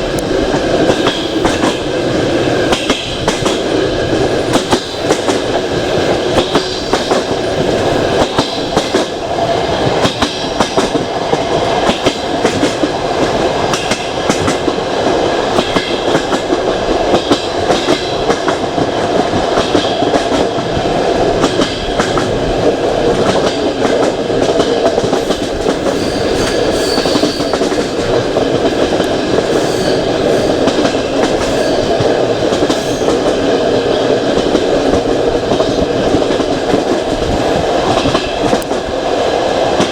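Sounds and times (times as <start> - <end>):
train wheels rumbling: 0.0 - 39.9
wheels clacking over rails: 9.8 - 38.9.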